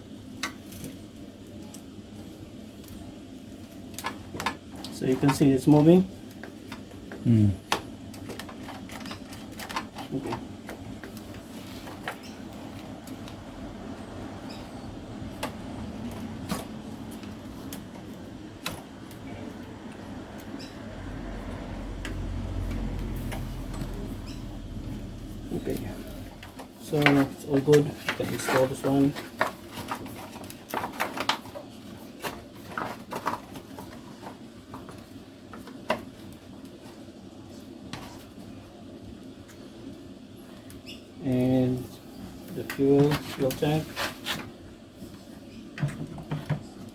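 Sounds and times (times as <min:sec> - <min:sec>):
steady low hum: 0:09.4 - 0:29.5.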